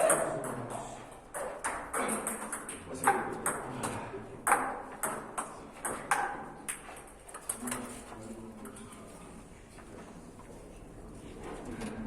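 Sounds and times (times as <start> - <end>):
ball bouncing on table: 0.0 - 6.9.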